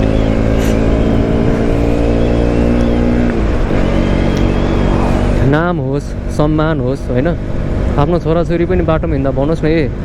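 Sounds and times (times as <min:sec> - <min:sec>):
motorcycle engine running: 0:00.0 - 0:10.0
wind rumble on microphone: 0:00.0 - 0:10.0.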